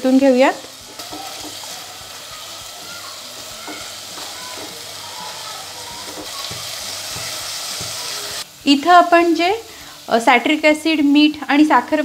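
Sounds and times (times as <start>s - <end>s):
paste sizzling in hot oil: 0.0s - 12.0s
spatula scraping a pan: 0.6s - 8.4s.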